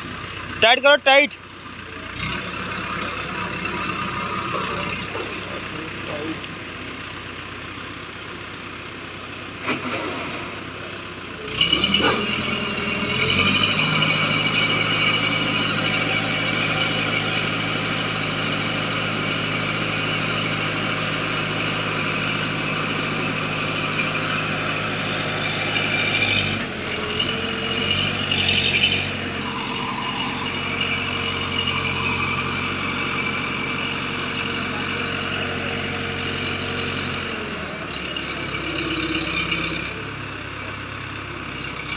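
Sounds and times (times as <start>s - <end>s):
diesel engine revving: 0.0s - 41.9s
hydraulic whine: 9.6s - 40.1s.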